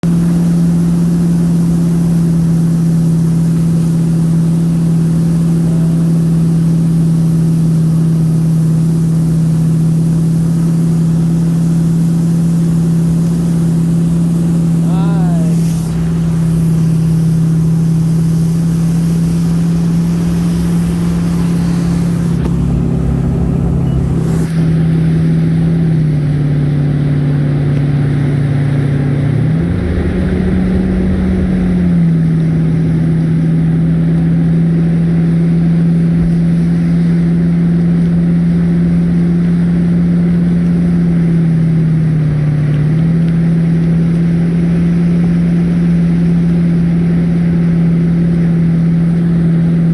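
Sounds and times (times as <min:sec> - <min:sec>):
motor droning: 0:00.0 - 0:25.7, 0:26.3 - 0:34.3
loud hiss: 0:00.1 - 0:24.6.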